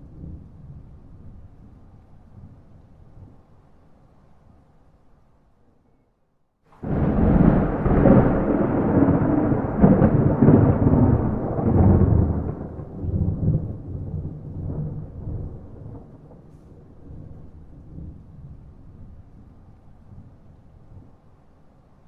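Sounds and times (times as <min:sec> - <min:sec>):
thunder rumbling: 0:06.8 - 0:19.6.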